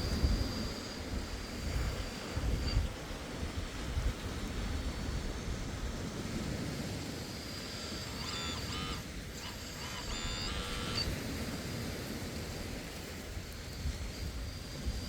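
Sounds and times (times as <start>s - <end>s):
high-pitched warbling tones: 7.4s - 11.1s.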